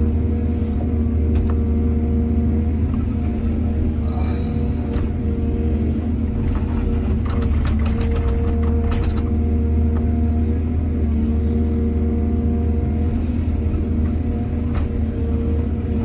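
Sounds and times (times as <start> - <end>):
heavy machinery diesel engine: 0.0 - 16.0
rattling clanks and clicks: 6.4 - 9.4.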